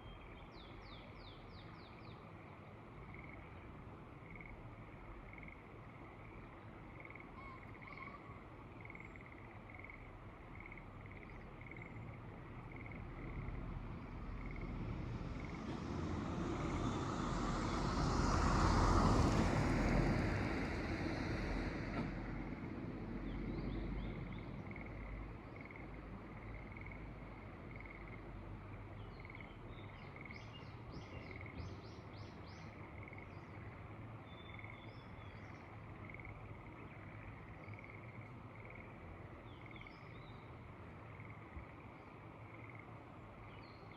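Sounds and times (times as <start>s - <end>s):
frogs calling: 4.2s - 4.6s, 5.3s - 6.4s, 8.8s - 13.4s, 25.6s - 28.3s, 29.2s - 30.5s, 32.7s - 33.8s, 35.9s - 40.1s, 41.1s - 43.0s.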